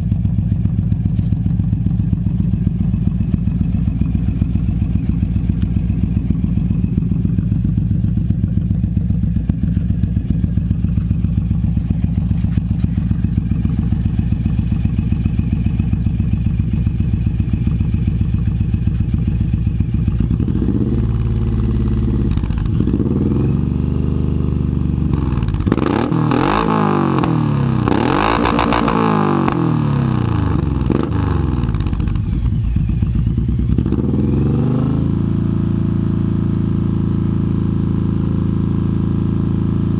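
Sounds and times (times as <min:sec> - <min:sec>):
motorcycle engine idling: 0:00.0 - 0:39.9
engine revving: 0:20.0 - 0:39.9.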